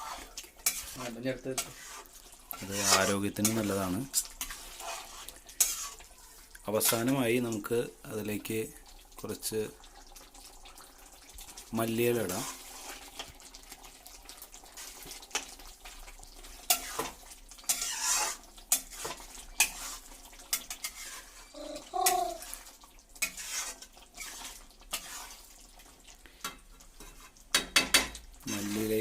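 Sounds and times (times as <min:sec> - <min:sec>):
spoon scraping a pan: 0:00.0 - 0:07.2, 0:12.1 - 0:13.4, 0:14.6 - 0:29.0.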